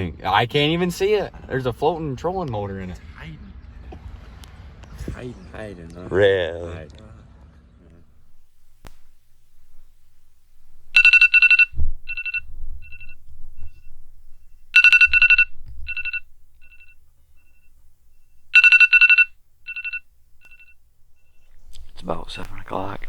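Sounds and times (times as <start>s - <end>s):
phone ringtone trill and beeps: 10.6s - 20.8s.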